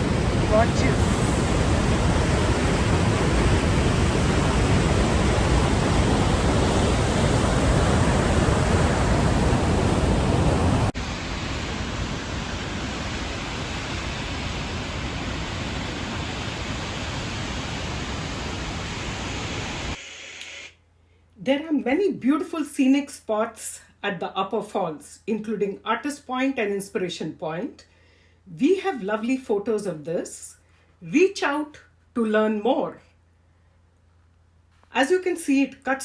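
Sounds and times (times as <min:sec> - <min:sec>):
waterfall roaring: 0:00.0 - 0:20.0.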